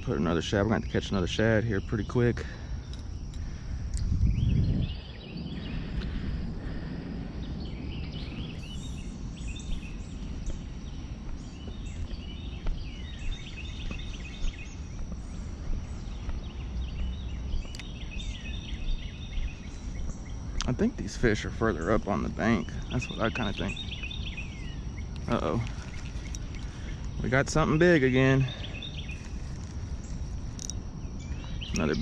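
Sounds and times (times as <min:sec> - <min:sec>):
birds chirping and singing: 0:00.0 - 0:32.0
low outdoor rumble: 0:00.0 - 0:32.0.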